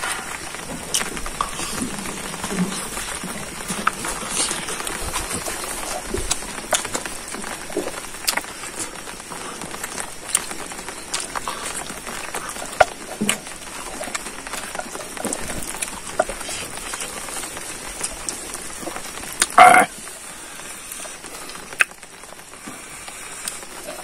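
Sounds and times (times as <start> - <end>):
background hiss: 0.0 - 24.0
wet chewing and lip-smacks: 9.8 - 17.2.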